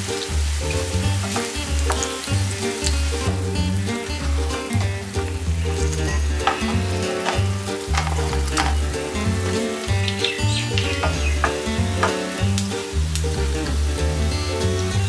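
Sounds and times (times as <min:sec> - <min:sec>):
background music with bass: 0:00.0 - 0:15.0
pancakes sizzling in oil: 0:00.0 - 0:15.0
wooden spatula scraping a pan: 0:05.7 - 0:10.0.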